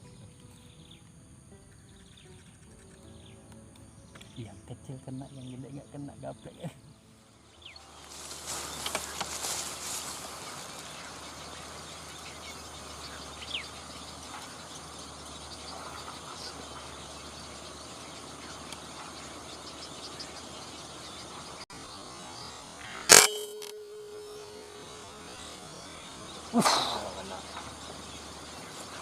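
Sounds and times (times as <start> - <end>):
insects and frogs chorus: 0.0 - 29.0
short steady hum: 7.4 - 29.0
short chirp: 22.8 - 27.2
air rifle firing: 23.1 - 24.3.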